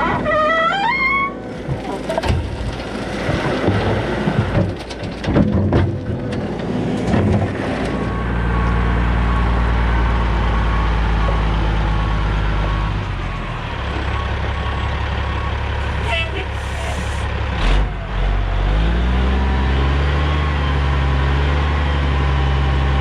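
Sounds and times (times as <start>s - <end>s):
diesel loader engine running: 0.0s - 23.0s
knocks and clattering: 1.6s - 7.9s.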